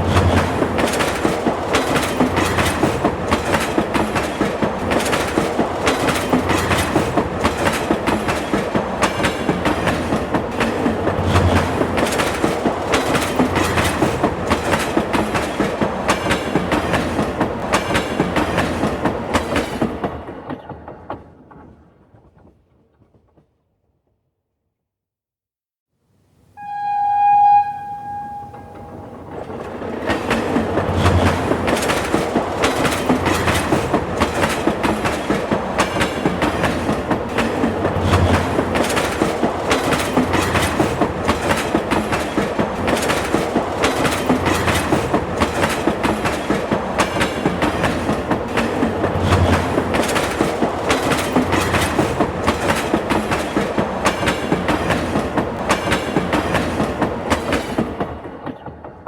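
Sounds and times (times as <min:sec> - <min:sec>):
train rumble: 0:00.0 - 0:22.6, 0:26.6 - 0:59.0
train wheels clacking on rails: 0:00.0 - 0:23.4, 0:28.1 - 0:59.0
train horn blast: 0:26.6 - 0:29.3.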